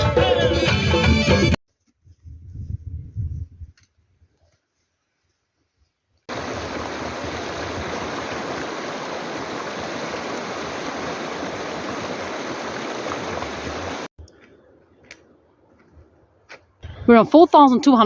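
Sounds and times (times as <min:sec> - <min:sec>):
rushing stream water: 0:06.3 - 0:14.1.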